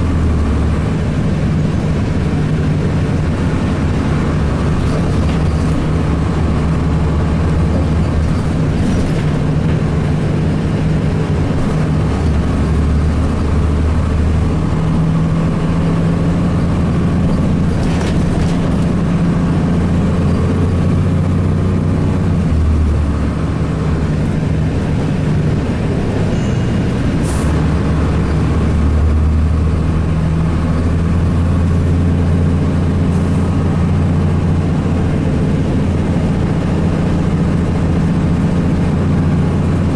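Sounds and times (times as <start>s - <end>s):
diesel bus engine running: 0.0s - 39.9s.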